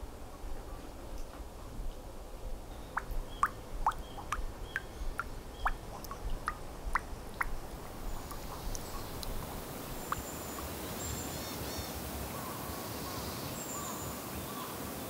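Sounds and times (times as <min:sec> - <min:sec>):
low background rumble: 0:00.0 - 0:10.8
bird calling sharp notes: 0:02.8 - 0:10.4.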